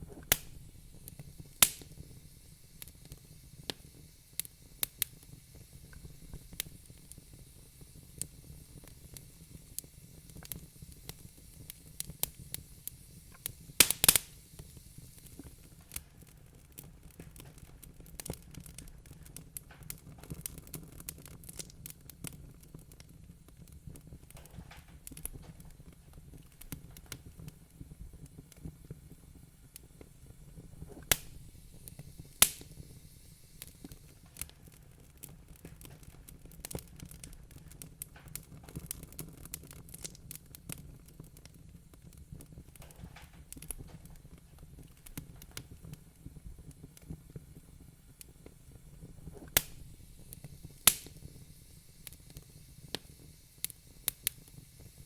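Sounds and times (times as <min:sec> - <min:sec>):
sharp loud fire pops: 0:00.0 - 0:02.2, 0:13.8 - 0:14.6, 0:31.0 - 0:33.0, 0:49.4 - 0:50.0, 0:50.7 - 0:51.4
wood fire crackling: 0:00.0 - 0:55.0.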